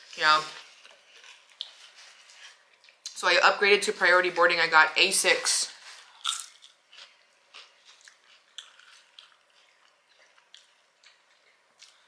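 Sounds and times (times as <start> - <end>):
faint chewing of food: 0.0 - 3.2, 5.8 - 12.0.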